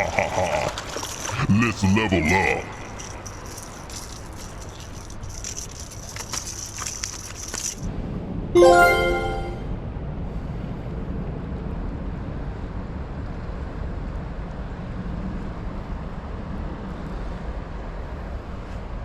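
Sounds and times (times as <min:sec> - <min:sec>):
musical sound effect: 0:08.6 - 0:09.7.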